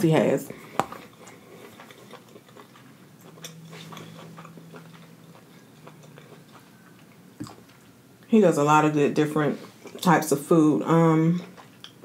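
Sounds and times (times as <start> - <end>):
faint low hum: 0.0 - 12.0
chewing food: 0.5 - 8.0, 11.2 - 12.0.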